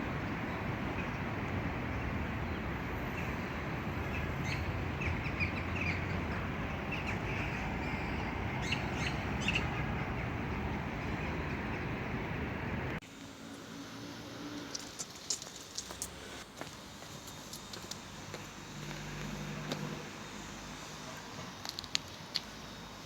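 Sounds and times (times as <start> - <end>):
small birds chirping: 0.0 - 12.3
steady background noise: 0.0 - 23.0.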